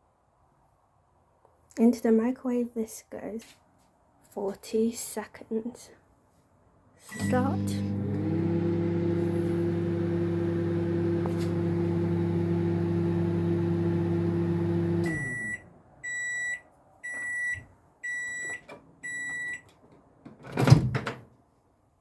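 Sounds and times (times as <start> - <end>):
microwave oven humming: 7.1 - 15.7
microwave beeps: 7.1 - 19.7.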